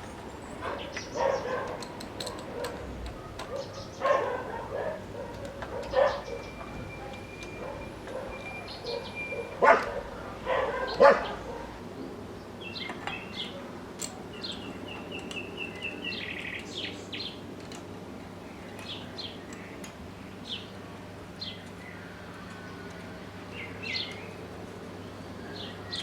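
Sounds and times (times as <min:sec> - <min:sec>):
birds chirping: 0:00.2 - 0:26.0
dog barking: 0:00.6 - 0:06.5, 0:07.6 - 0:11.8.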